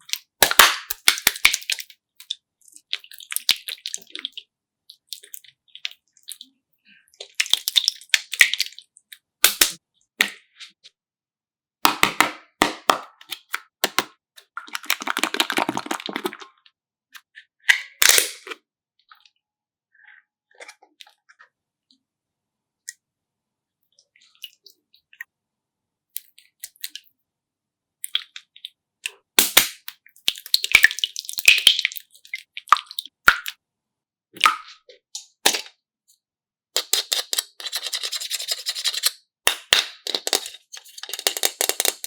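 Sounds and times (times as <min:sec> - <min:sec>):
clicks and crackles of handled objects: 0:36.8 - 0:42.0.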